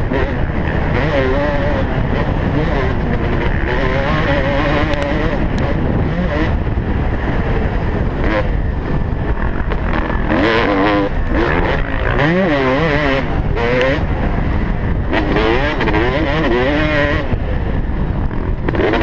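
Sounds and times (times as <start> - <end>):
motocross bike engine revving: 0.0 - 19.0
rough wind noise: 0.0 - 19.0
track noise: 0.0 - 19.0.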